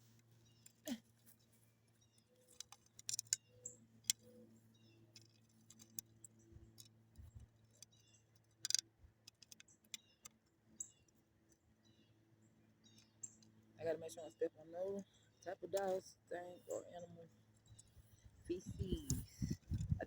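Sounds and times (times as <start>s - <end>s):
sharp clicks and ticks: 5.1s - 11.2s
steady low hum: 11.9s - 20.0s.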